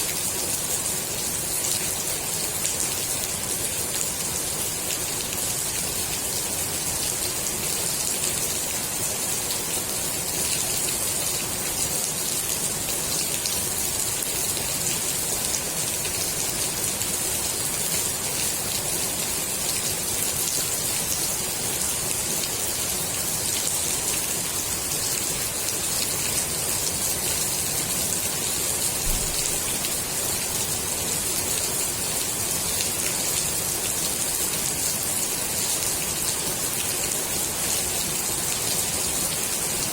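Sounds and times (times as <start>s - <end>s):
rain falling on water: 0.0s - 39.9s.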